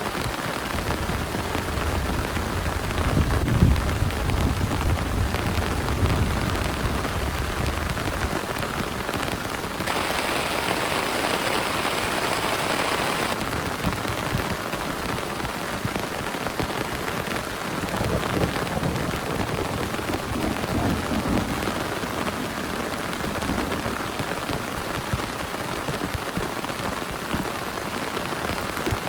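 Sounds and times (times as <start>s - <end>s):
heavy rain on plastic tarp: 0.0s - 29.0s
thunder rumble: 9.9s - 13.4s.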